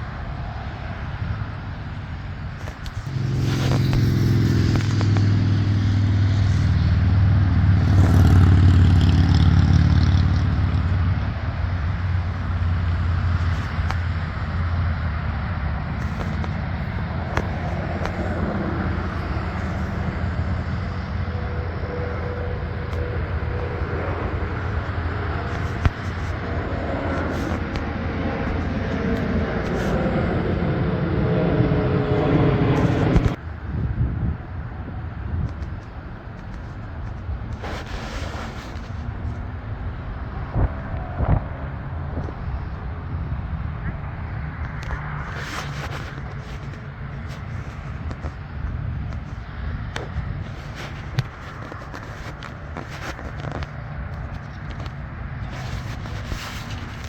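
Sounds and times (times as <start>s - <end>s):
heavy engine hum: 0.0s - 33.7s
rumble of passing traffic: 0.0s - 57.0s.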